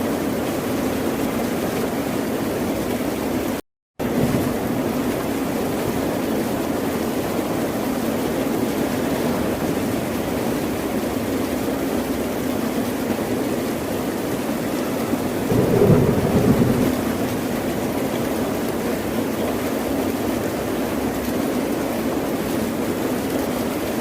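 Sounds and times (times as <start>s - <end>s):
ocean surf: 15.2s - 18.3s.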